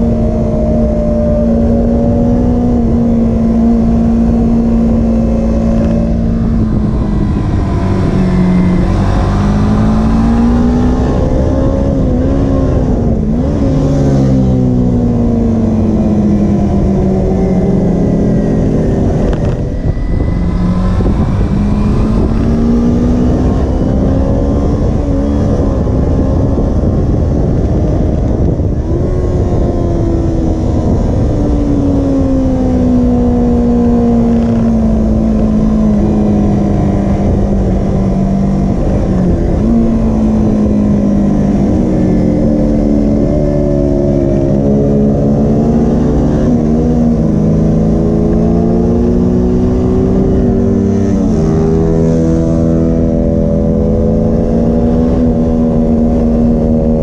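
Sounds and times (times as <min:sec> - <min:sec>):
motorcycle engine at speed: 0:00.0 - 0:57.0
wind noise: 0:00.0 - 0:57.0.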